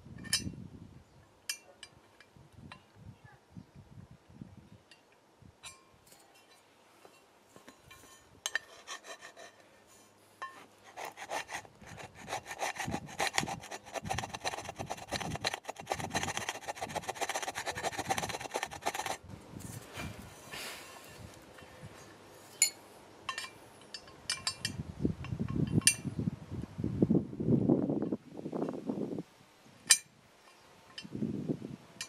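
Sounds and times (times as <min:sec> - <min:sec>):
abrasive rubbing strokes: 0:10.8 - 0:19.2.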